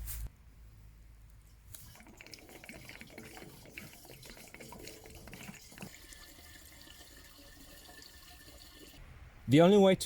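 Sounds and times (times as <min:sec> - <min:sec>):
fuel pouring with glugs: 0:01.7 - 0:09.0.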